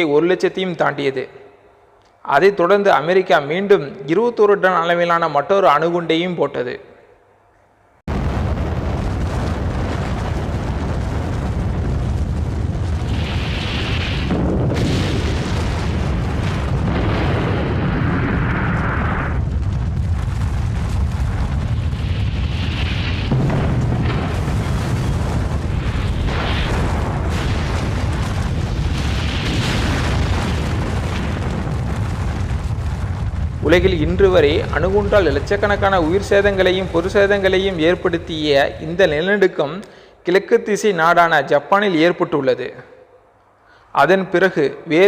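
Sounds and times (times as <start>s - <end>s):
deep explosion rumble: 8.1s - 39.4s.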